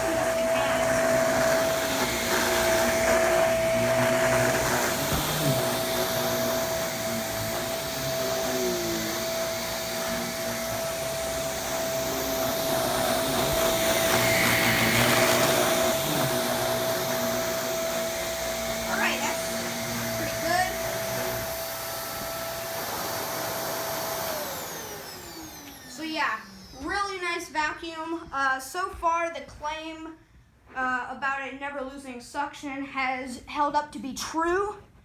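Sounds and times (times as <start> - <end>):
vacuum cleaner motor whine: 0.0 - 27.8.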